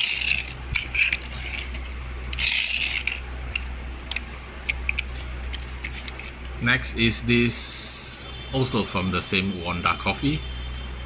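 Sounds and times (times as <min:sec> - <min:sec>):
toy car gears whirring: 0:00.0 - 0:06.5.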